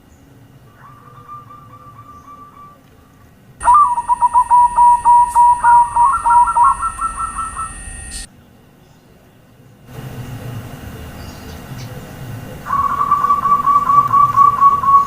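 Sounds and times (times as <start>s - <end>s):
dove cooing: 0.7s - 8.3s, 12.6s - 15.0s
steady high whine: 3.6s - 8.3s.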